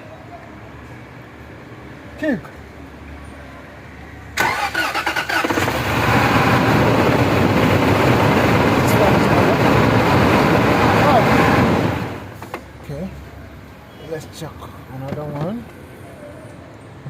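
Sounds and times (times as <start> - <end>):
car starter cranking: 4.4 - 6.0
car engine running: 5.6 - 12.4.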